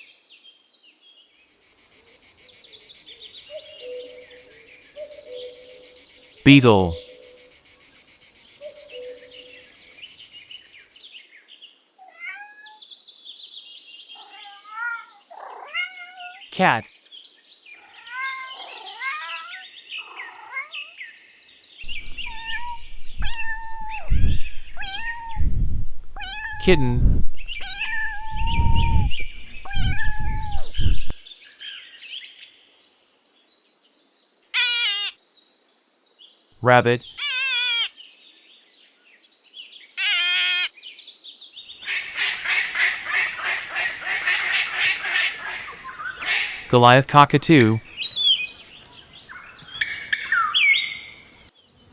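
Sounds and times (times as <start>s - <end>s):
cat meowing: 24.8s - 25.4s, 26.2s - 26.7s.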